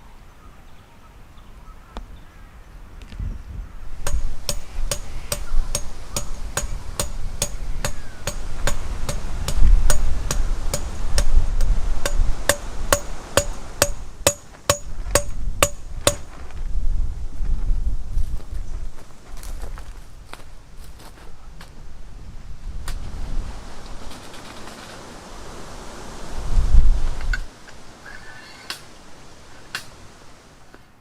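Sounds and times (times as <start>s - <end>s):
low wind rumble: 0.0s - 31.0s
hammer striking metal tent peg: 4.0s - 16.3s, 29.7s - 30.0s.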